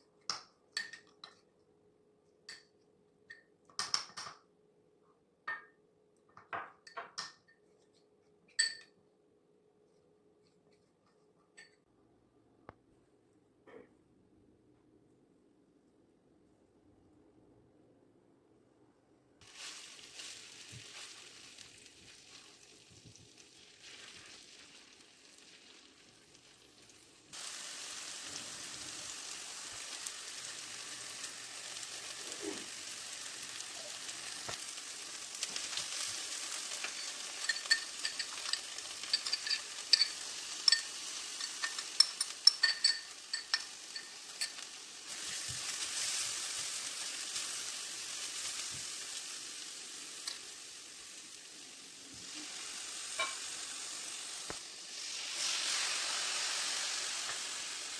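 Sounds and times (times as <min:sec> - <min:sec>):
food sizzling in a pan: 0:19.4 - 0:57.9.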